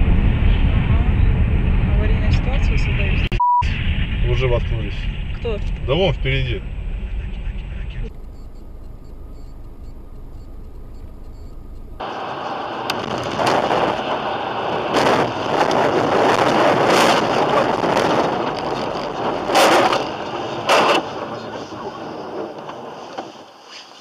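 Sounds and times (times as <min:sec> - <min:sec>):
rushing wind: 0:00.0 - 0:08.5, 0:12.0 - 0:24.0
in-car hum: 0:00.0 - 0:24.0
road noise: 0:00.0 - 0:24.0.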